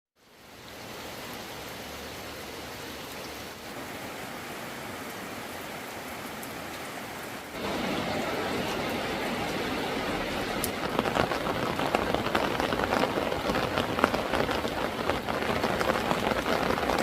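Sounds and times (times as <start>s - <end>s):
heavy rain hissing: 0.2s - 17.0s.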